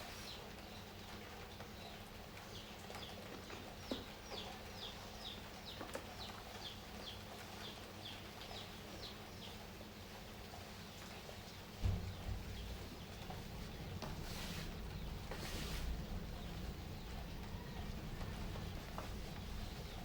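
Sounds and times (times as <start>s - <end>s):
small bird chirping: 10.8s - 20.0s
background hiss: 10.9s - 20.0s.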